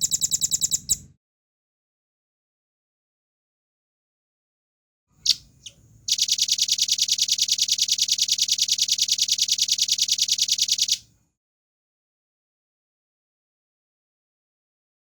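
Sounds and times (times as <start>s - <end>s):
bird calling with rattle: 5.2s - 11.0s.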